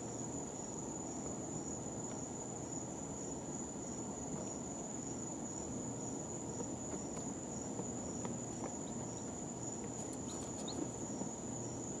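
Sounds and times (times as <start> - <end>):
chicks peeping: 10.0 - 11.0.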